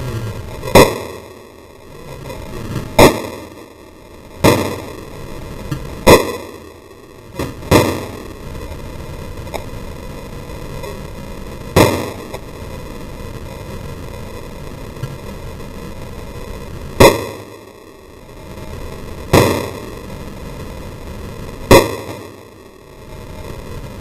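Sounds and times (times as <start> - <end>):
pistol shots: 0.6 - 1.3, 3.0 - 3.6, 4.4 - 4.9, 6.0 - 6.6, 7.4 - 8.3, 11.8 - 12.4, 17.0 - 17.6, 19.3 - 19.8, 21.7 - 22.4.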